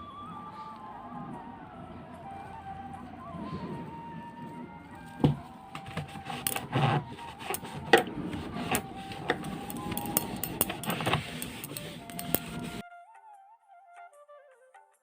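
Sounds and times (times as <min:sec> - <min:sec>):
faint background music: 0:00.0 - 0:15.0
hard objects knocking and clinking: 0:05.2 - 0:12.8.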